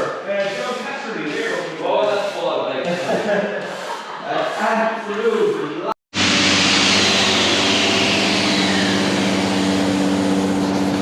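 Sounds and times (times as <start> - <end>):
motor-driven machine whining: 6.2 - 11.0.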